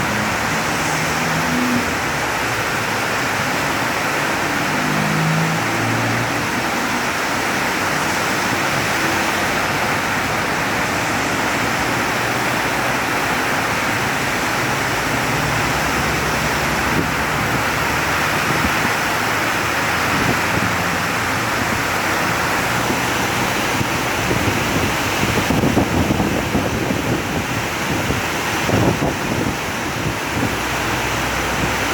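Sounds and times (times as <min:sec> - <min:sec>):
heavy rain pouring: 0:00.0 - 0:31.9.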